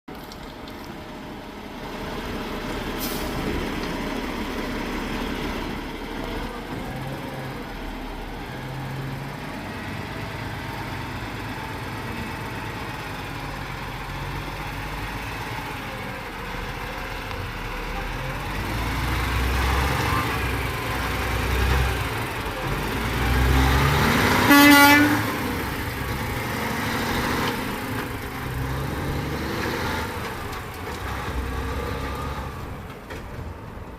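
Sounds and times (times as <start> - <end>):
diesel truck engine rumble: 0.1 - 33.9
air horn toot: 24.4 - 25.4.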